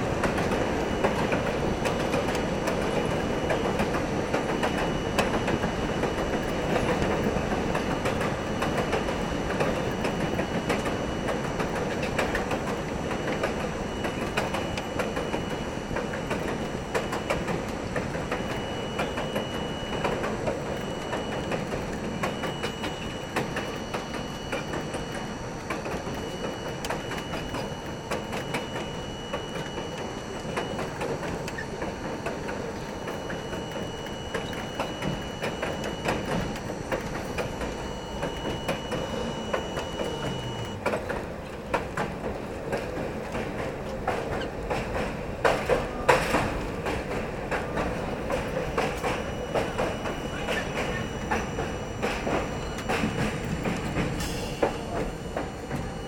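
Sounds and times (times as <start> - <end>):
subway car rumble: 0.0 - 56.0
faint high whine: 12.7 - 40.8, 48.2 - 56.0.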